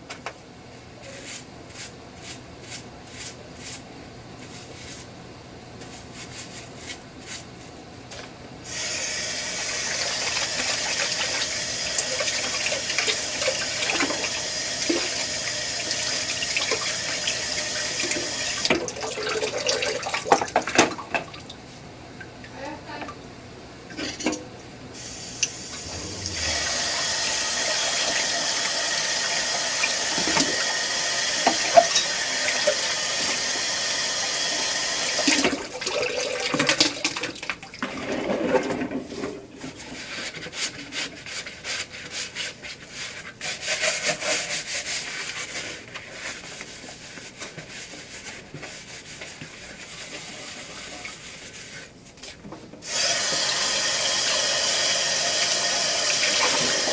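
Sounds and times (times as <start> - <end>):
water running from a tap: 8.7 - 21.5, 25.4 - 37.7, 52.9 - 56.9.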